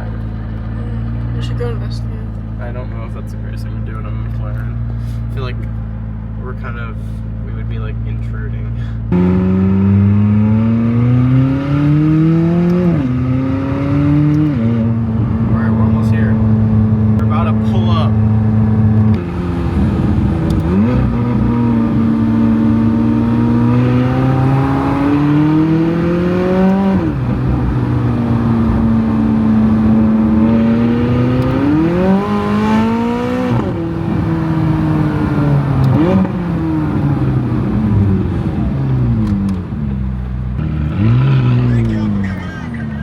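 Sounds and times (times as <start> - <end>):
car engine accelerating through gears: 8.8 - 43.0.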